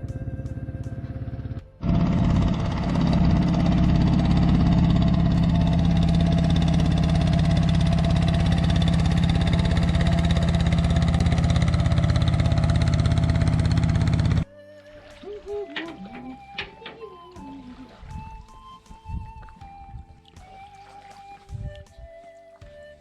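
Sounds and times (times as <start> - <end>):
motor tricycle engine running: 0.0 - 14.5, 15.5 - 17.5.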